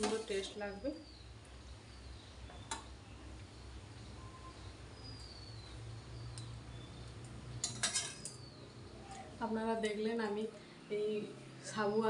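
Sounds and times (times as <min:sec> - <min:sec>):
faint high bird chirps: 0:00.6 - 0:07.1.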